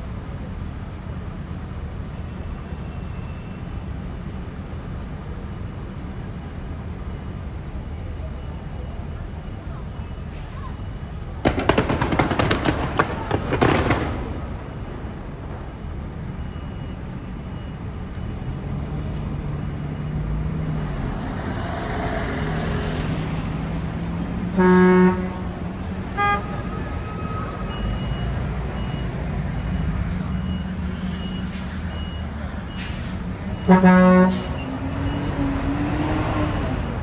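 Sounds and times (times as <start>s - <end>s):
street traffic noise: 0.0s - 37.0s
crackling pops: 11.4s - 16.9s
vehicle horn honking: 24.5s - 27.9s, 33.6s - 34.9s.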